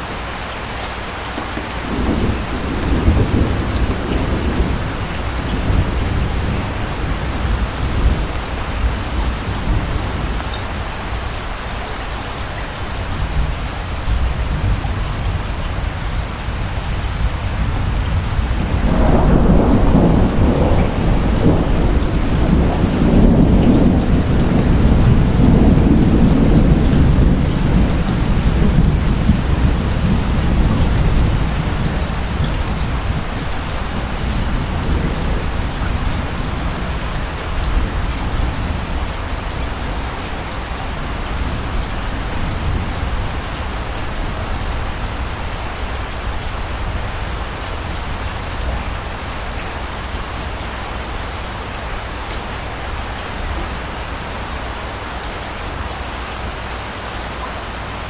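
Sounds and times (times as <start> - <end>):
distant thunder rumbling: 0.0 - 11.6, 12.9 - 54.0
steady rain: 0.0 - 58.0.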